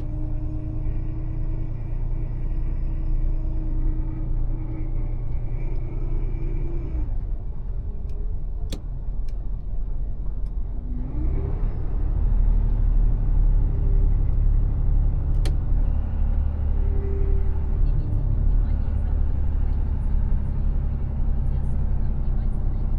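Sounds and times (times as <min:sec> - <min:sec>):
diesel truck engine rumbling: 0:00.0 - 0:22.9.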